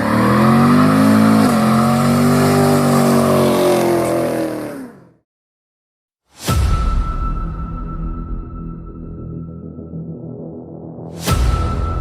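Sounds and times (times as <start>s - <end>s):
car engine at high revs: 0.0s - 5.2s.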